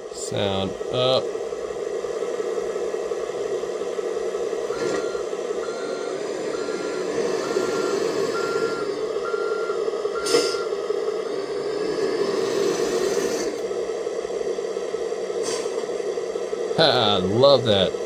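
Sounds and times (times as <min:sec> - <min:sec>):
truck engine running: 0:00.0 - 0:18.0
reversing alarm beeps: 0:04.6 - 0:10.8.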